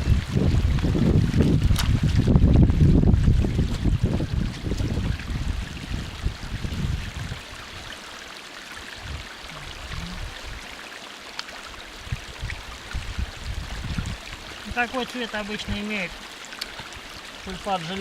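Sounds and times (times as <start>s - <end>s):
wind buffeting microphone: 0.0s - 7.9s, 9.0s - 10.7s, 12.0s - 14.8s
stream water trickling: 0.0s - 18.0s.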